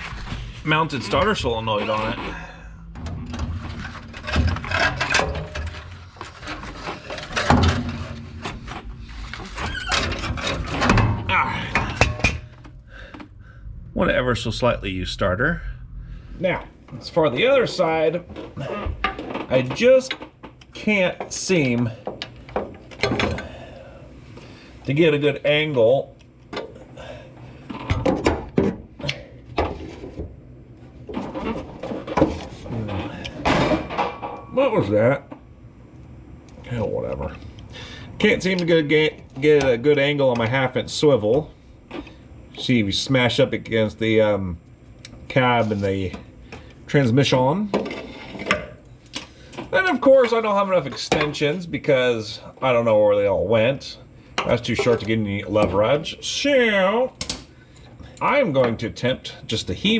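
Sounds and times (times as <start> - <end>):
metal clunks and scrapes: 0.0 - 13.8, 18.3 - 20.6, 27.6 - 30.4, 31.0 - 34.5, 47.7 - 49.7.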